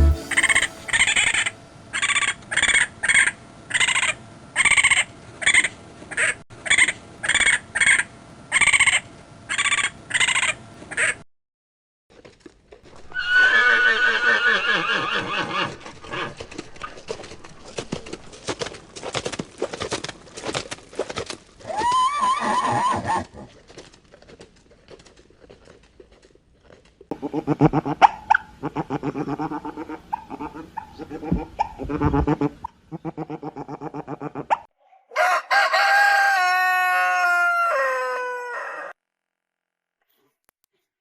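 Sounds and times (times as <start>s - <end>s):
short pitched sounds: 0.0s - 2.2s
horse whinnying: 13.1s - 16.4s, 21.6s - 23.5s.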